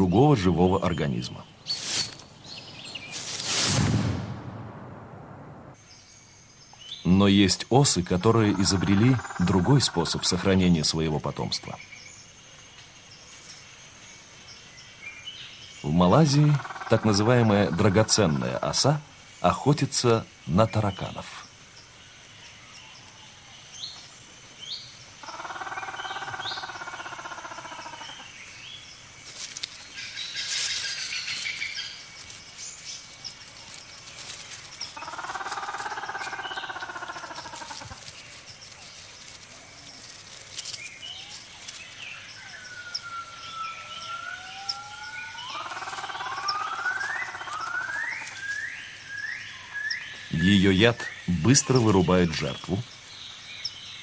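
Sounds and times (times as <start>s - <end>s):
bird chirps: 0.0s - 3.4s, 20.4s - 54.0s
high insect whine: 5.7s - 54.0s
long bird calls: 6.8s - 13.6s, 20.5s - 54.0s.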